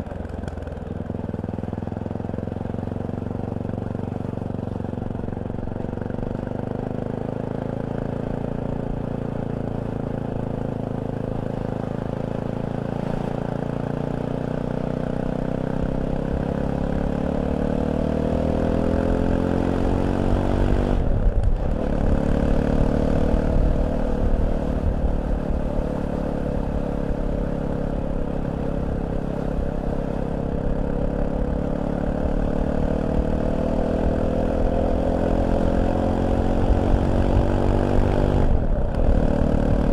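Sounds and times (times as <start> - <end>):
motorcycle engine revving: 0.0 - 39.9
wind rumble on microphone: 20.0 - 26.1, 33.1 - 39.9.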